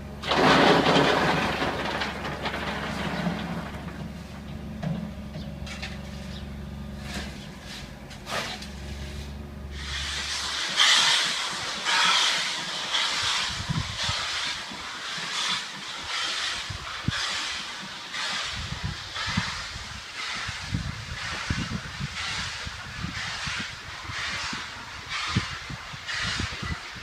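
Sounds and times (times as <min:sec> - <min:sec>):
steady low hum: 0:02.3 - 0:11.8
steam locomotive hissing: 0:07.1 - 0:27.0.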